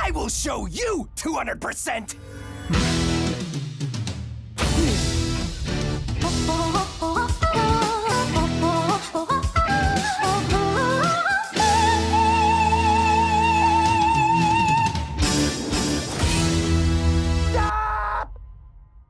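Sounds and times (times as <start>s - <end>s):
electric guitar backing track: 4.6s - 17.7s
boy singing: 6.2s - 14.9s.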